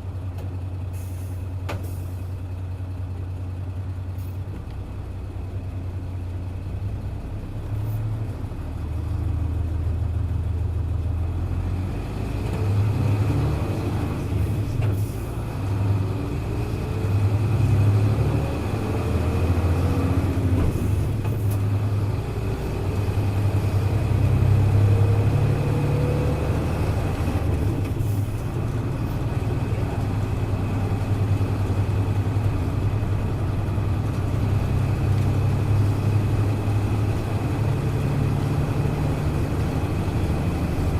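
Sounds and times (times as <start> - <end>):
bus diesel engine under load: 0.0 - 40.9.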